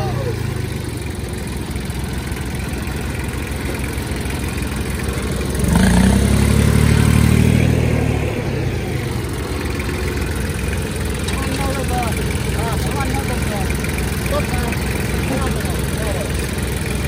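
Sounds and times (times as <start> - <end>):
tractor engine revving: 0.0 - 17.0.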